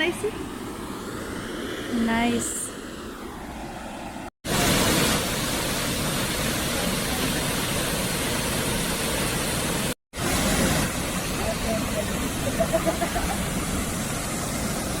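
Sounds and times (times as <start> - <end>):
waterfall rushing: 4.5 - 15.0.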